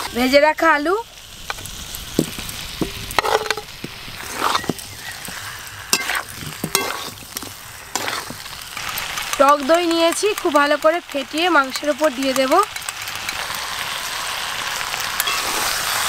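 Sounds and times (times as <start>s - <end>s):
food sizzling in a pan: 0.0s - 16.0s
metal spatula scraping a pan: 2.3s - 9.6s, 15.2s - 16.0s.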